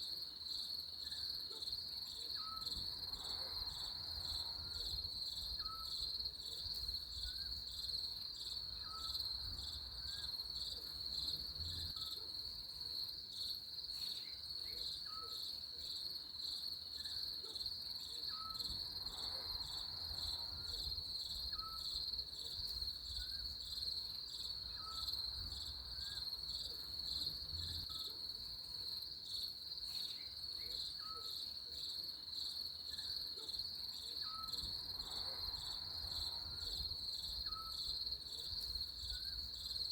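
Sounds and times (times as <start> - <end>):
crickets chirping in a trill: 0.0 - 39.9.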